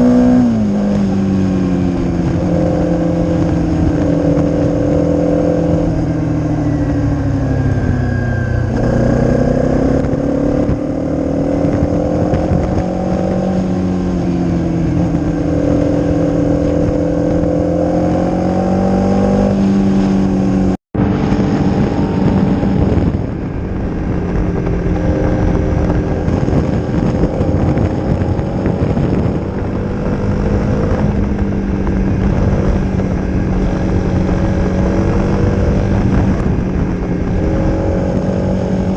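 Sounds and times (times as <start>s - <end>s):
motorcycle engine revving: 0.0s - 38.9s
wind noise: 0.0s - 38.9s.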